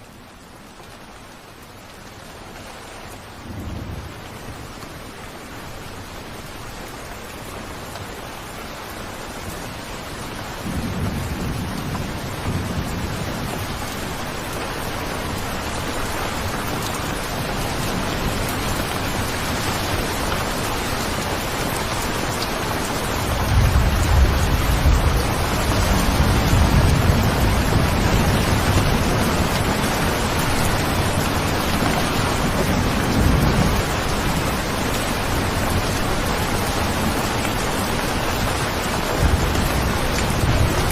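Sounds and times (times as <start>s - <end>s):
steady rain: 0.0s - 40.9s
rolling thunder: 10.6s - 13.9s, 23.4s - 34.5s, 39.2s - 40.9s.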